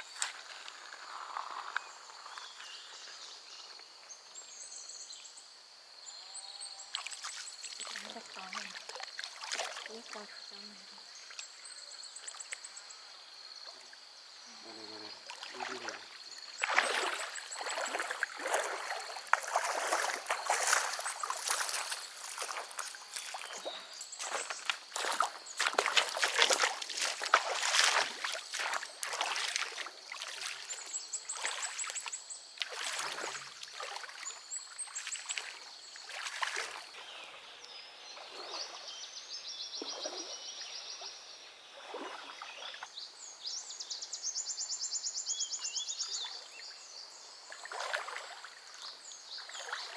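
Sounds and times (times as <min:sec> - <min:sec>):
water sloshing and splashing: 0:06.9 - 0:12.7, 0:15.0 - 0:37.3, 0:38.2 - 0:39.0, 0:39.8 - 0:40.4, 0:41.8 - 0:43.0, 0:47.4 - 0:49.9.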